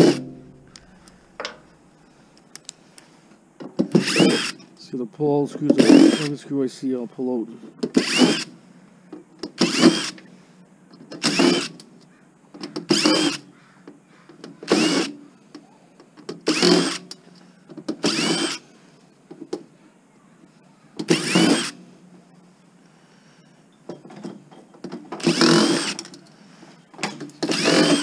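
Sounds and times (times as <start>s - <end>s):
power drill whining: 3.9s - 4.6s, 5.7s - 6.4s, 7.8s - 8.6s, 9.5s - 10.3s, 11.2s - 11.8s, 12.8s - 13.5s, 14.5s - 15.2s, 16.4s - 17.2s, 17.9s - 18.6s, 21.0s - 21.8s, 25.2s - 28.0s.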